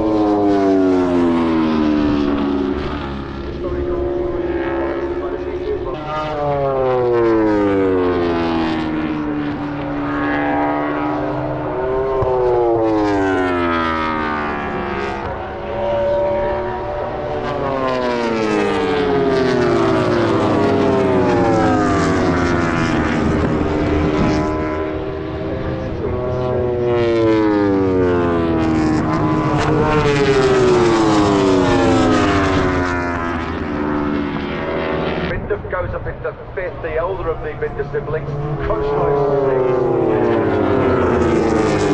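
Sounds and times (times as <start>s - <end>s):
racing motorcycle engine revving: 0.0s - 35.4s, 36.6s - 41.9s.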